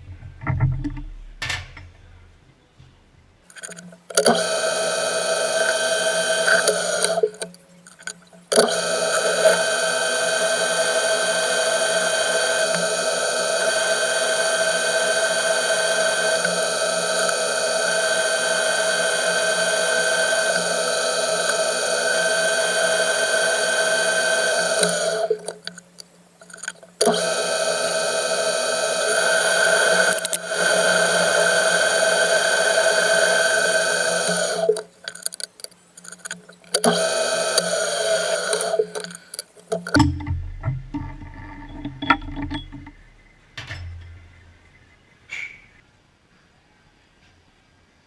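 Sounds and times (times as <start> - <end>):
machine tool whining: 3.5 - 40.1.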